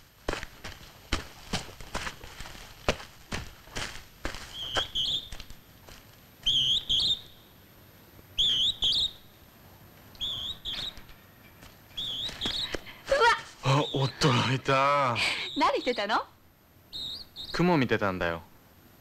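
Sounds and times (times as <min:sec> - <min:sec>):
small bird singing: 0:04.5 - 0:05.5, 0:06.4 - 0:07.6, 0:08.4 - 0:09.4, 0:10.2 - 0:11.2, 0:11.9 - 0:14.4, 0:15.3 - 0:16.2, 0:16.9 - 0:17.9.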